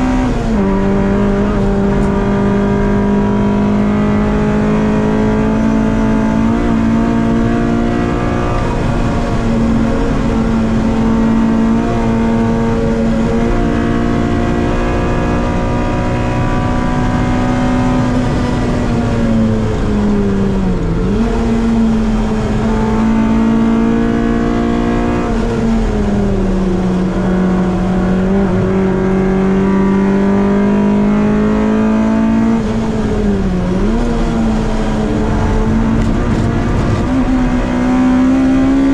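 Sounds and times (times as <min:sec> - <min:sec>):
race car engine at high revs: 0:00.0 - 0:38.9.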